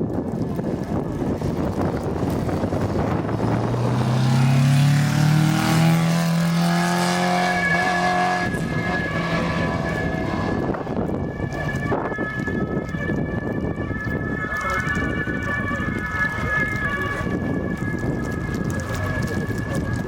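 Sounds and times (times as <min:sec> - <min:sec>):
rally car accelerating past: 0:02.4 - 0:11.0.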